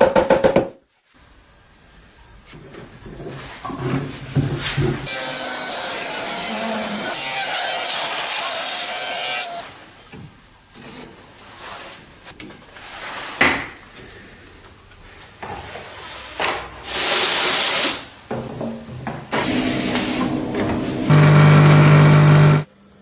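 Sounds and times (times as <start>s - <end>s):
loud noisy stroke: 19.4s - 22.7s
power tool running: 19.4s - 22.7s.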